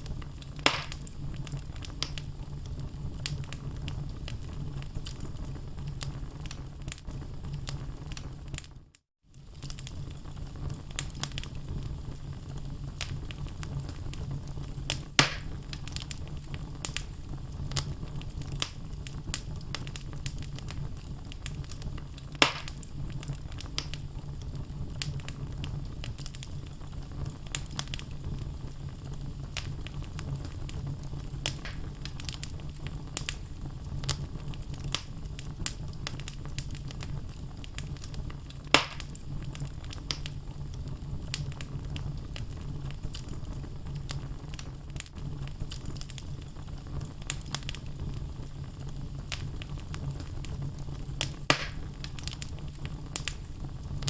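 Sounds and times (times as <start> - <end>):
sharp pops of burning wood: 0.0 - 2.3, 13.0 - 14.3, 14.9 - 24.0, 25.0 - 28.5, 29.2 - 54.0
wood fire crackling: 0.0 - 54.0.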